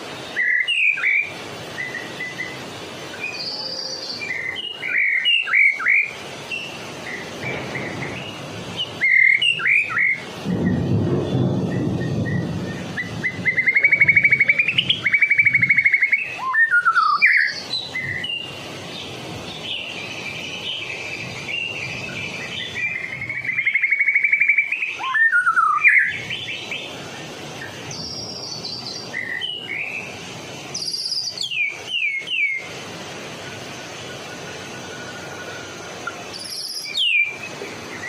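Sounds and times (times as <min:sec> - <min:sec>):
songbird singing trills and whistles: 0:00.2 - 0:27.0, 0:27.6 - 0:32.7, 0:34.1 - 0:38.0.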